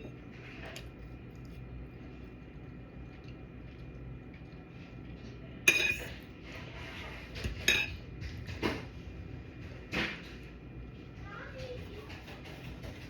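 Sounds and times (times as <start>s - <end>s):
cutlery clinking against dish: 5.7s - 6.2s, 7.4s - 8.8s.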